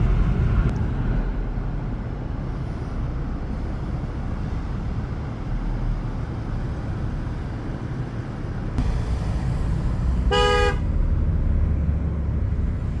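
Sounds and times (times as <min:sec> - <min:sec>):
vehicle rumble: 0:00.0 - 0:13.0
car horn toot: 0:10.3 - 0:10.9.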